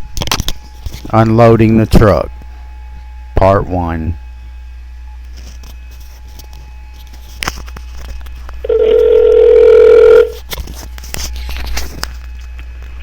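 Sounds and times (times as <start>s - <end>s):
telephone ringback tone: 8.6s - 10.4s.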